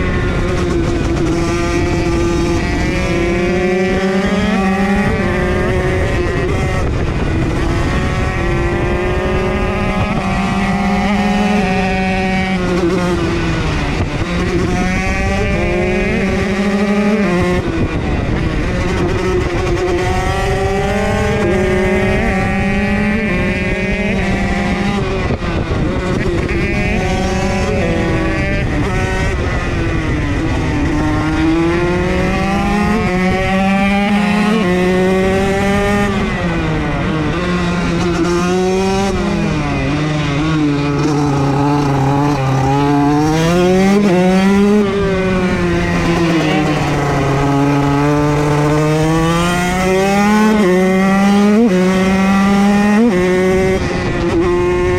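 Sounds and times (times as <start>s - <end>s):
motocross bike engine revving: 37.4s - 53.9s.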